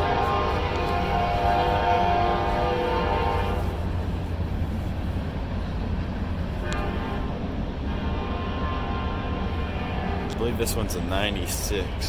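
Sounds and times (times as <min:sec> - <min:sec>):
train horn tones: 0:00.0 - 0:03.9, 0:06.6 - 0:11.0
train rumble: 0:00.0 - 0:12.0.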